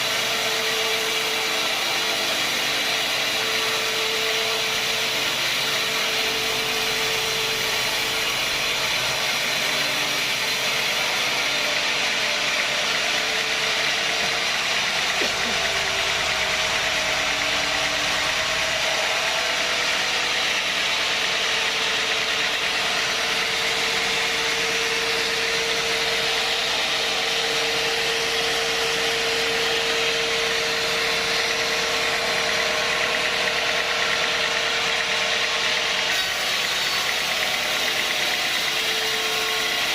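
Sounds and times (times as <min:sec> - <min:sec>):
sawmill machinery hum: 0:00.0 - 0:39.9.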